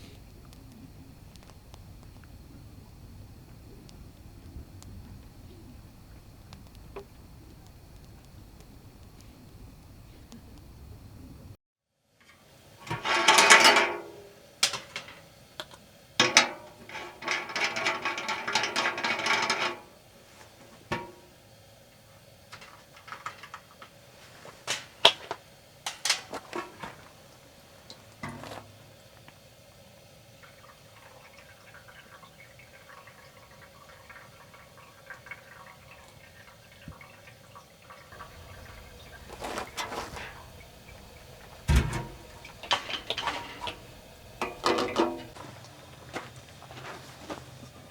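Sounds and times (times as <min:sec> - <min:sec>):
water running: 0:00.0 - 0:11.5, 0:12.3 - 0:47.9
cookware clicks and knocks: 0:12.8 - 0:15.2, 0:16.2 - 0:19.9, 0:20.9 - 0:21.2, 0:38.2 - 0:45.4.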